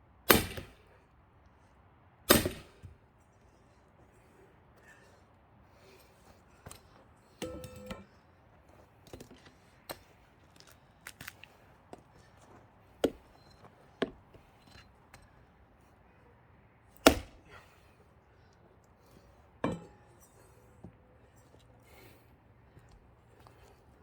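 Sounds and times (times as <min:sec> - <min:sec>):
axe blows splitting log: 0:00.3 - 0:00.7, 0:02.3 - 0:02.8, 0:17.0 - 0:17.4
metallic clang: 0:07.4 - 0:08.1, 0:19.6 - 0:20.3.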